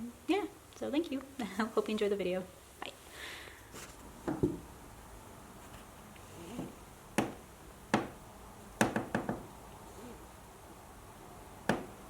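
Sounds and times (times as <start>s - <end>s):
sharp knocks: 6.6s - 8.2s, 8.8s - 9.5s, 11.6s - 12.0s.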